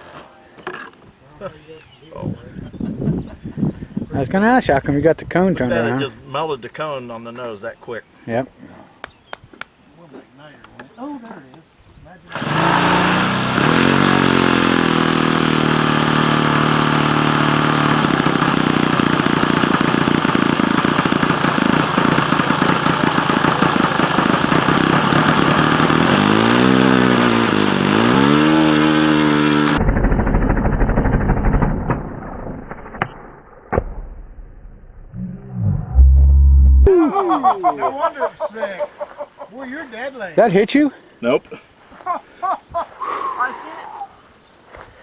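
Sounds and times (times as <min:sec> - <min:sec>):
model airplane engine revving: 0:12.3 - 0:29.8
low rumble: 0:29.8 - 0:36.9.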